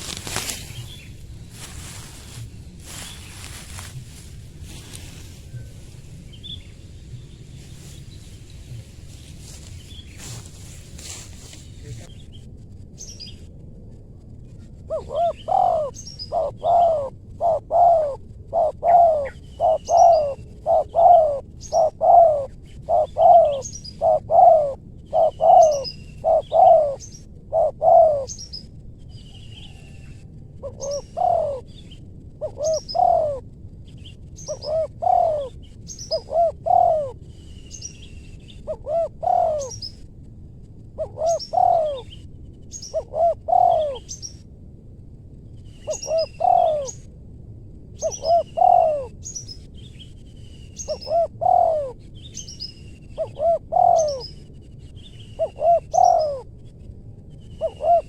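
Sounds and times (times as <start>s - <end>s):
dove cooing: 0.0s - 11.4s, 14.9s - 28.6s, 29.6s - 33.4s, 34.4s - 37.2s, 38.0s - 40.0s, 41.0s - 44.2s, 45.8s - 47.1s, 48.0s - 49.2s, 50.8s - 52.0s, 53.2s - 54.4s, 55.4s - 56.5s, 57.6s - 58.0s
small birds chirping: 0.0s - 13.4s, 14.9s - 40.1s, 41.0s - 44.5s, 45.4s - 47.1s, 48.0s - 58.0s.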